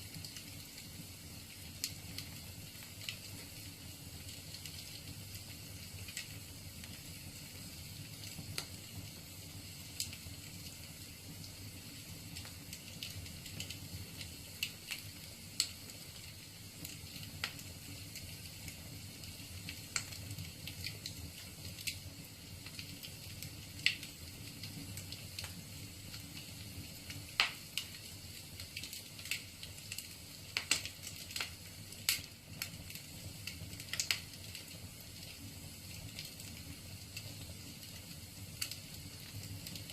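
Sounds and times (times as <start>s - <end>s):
burning logs popping: 0.0s - 39.9s
fire hissing: 0.0s - 39.9s.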